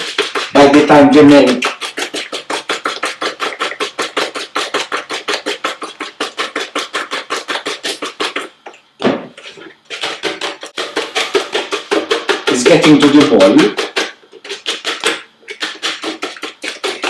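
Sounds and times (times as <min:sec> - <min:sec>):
hand whisk beating in bowl: 0:00.0 - 0:17.0
thump: 0:09.0 - 0:09.3.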